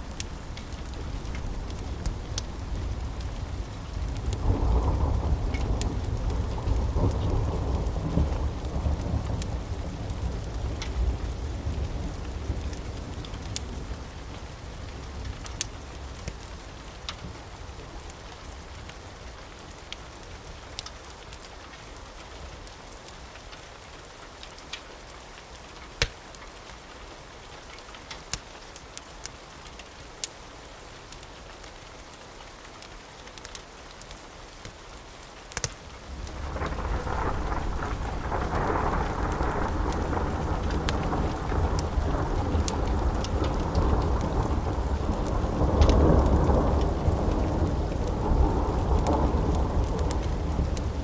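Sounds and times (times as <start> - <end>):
thunder rumbling: 0.0 - 13.2, 36.0 - 51.0
steady rain: 0.0 - 51.0
fireplace crackling: 35.4 - 46.0, 49.9 - 51.0
sharp thunder crack: 36.2 - 51.0.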